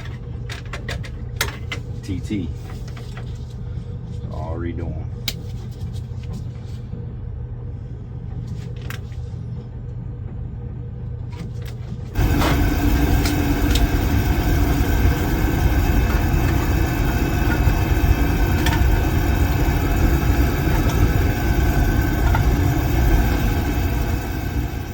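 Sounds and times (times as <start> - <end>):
faint hum: 0.0 - 24.9
oil burner rumbling: 9.3 - 24.9.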